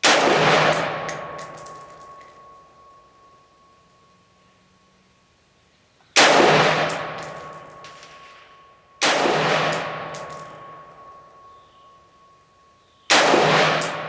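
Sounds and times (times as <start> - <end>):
rifle shots echoing: 0.0 - 2.0, 6.2 - 8.3, 9.0 - 10.8, 13.1 - 14.0
faint clinks: 0.8 - 5.0, 6.9 - 9.0, 9.7 - 13.1.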